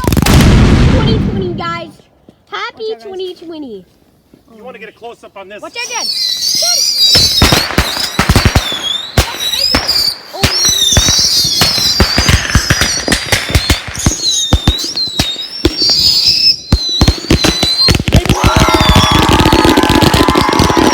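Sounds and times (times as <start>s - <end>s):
whistling fireworks: 5.7s - 20.9s
firecrackers banging: 6.4s - 20.9s.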